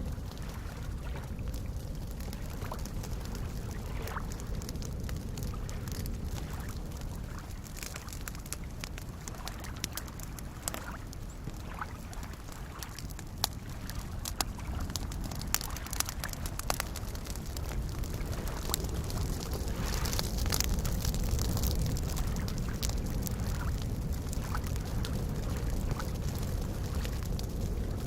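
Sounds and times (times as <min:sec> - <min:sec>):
campfire crackling and popping: 0:00.0 - 0:28.0
lake waves lapping: 0:00.3 - 0:23.8.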